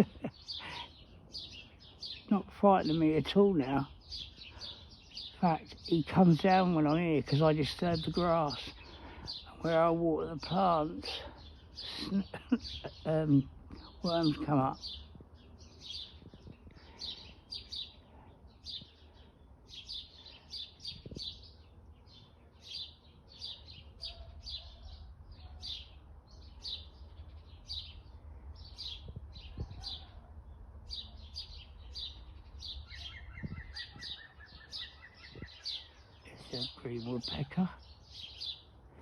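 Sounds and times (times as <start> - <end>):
garden birds chirping: 0.0 - 39.0
woodpecker alarm call: 30.9 - 36.2.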